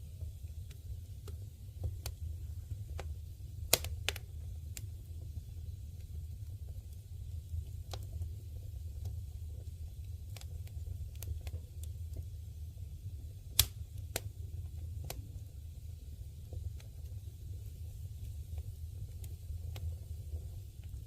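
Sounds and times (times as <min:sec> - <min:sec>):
low steady rumble: 0:00.0 - 0:21.0
campfire crackling and popping: 0:00.1 - 0:21.0.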